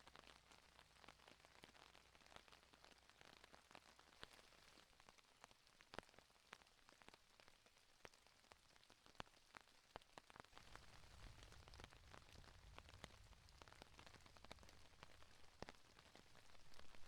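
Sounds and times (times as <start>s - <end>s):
light rain: 0.0s - 17.0s
faint low rumble: 10.6s - 17.0s.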